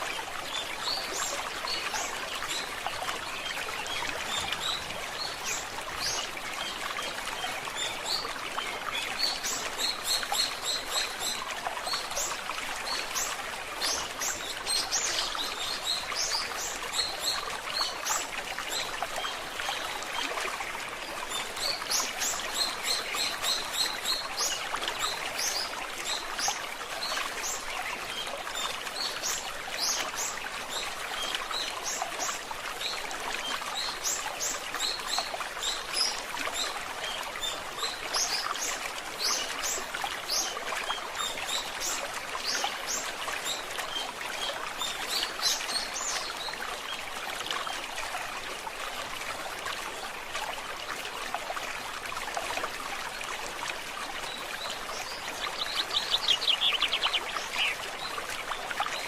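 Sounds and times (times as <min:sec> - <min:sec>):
stream trickling: 0:00.0 - 0:59.0
songbird chirping: 0:54.6 - 0:58.2.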